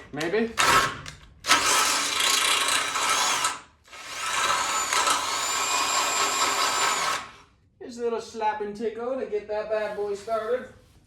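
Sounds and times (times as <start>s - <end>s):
electric drill boring steel: 1.5s - 7.4s.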